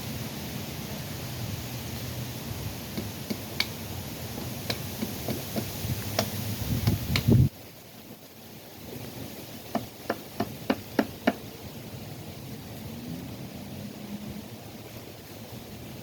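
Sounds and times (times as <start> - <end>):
wind rumble on microphone: 4.0 - 7.8, 11.5 - 16.0.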